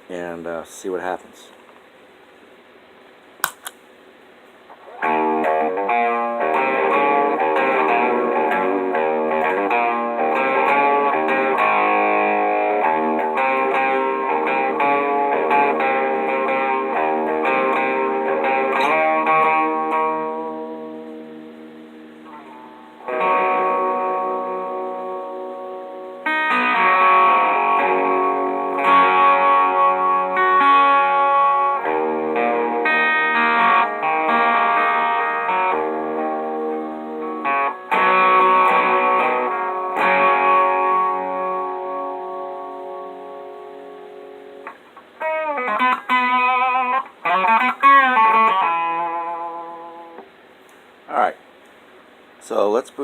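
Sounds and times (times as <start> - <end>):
electric guitar chords ringing: 4.8 - 50.5.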